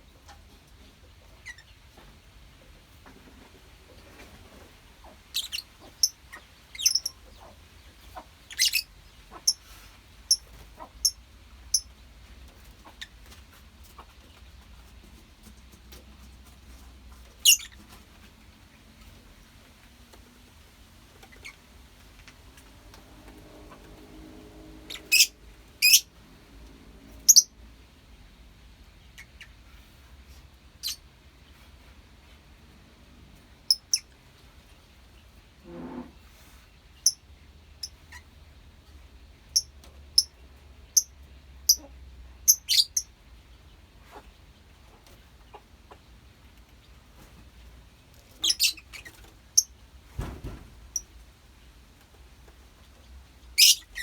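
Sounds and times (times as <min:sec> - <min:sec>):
lovebirds shrill chirps: 0:05.3 - 0:07.2, 0:08.5 - 0:09.6, 0:17.4 - 0:17.8, 0:24.9 - 0:26.1, 0:27.3 - 0:27.5, 0:42.5 - 0:43.1, 0:48.4 - 0:49.7, 0:53.6 - 0:54.0
lovebirds chirping shrilly: 0:24.9 - 0:26.1, 0:27.3 - 0:27.5, 0:48.4 - 0:49.7, 0:53.6 - 0:54.0.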